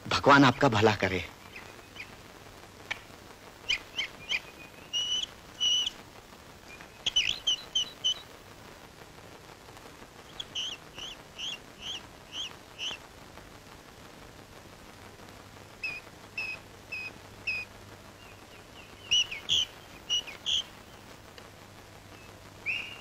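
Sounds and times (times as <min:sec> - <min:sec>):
birds chirping: 0:00.0 - 0:02.2, 0:02.9 - 0:06.0, 0:06.6 - 0:08.3, 0:10.2 - 0:13.0, 0:15.8 - 0:21.1, 0:22.1 - 0:23.0.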